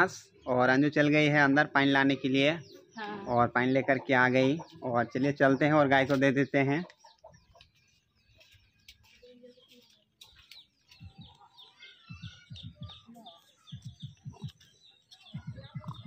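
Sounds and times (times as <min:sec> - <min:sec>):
birds chirping: 0:00.0 - 0:16.0
soft low thuds: 0:12.0 - 0:16.0.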